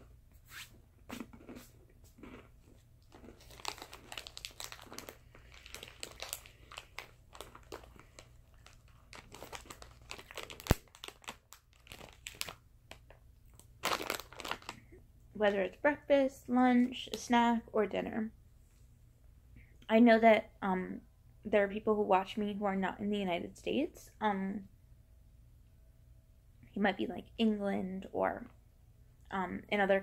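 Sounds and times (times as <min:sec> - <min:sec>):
cookies being chewed and crunched: 0:01.0 - 0:15.0
plastic packet crinkling: 0:02.2 - 0:14.9.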